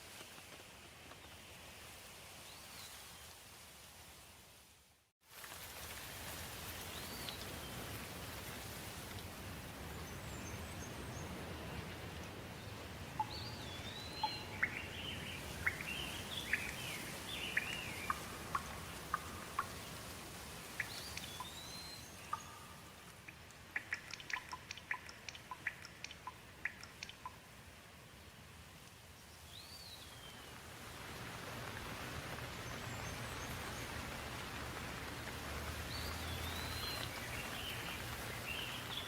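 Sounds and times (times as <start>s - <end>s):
steady rain: 0.0s - 39.0s
birds calling: 12.7s - 20.0s.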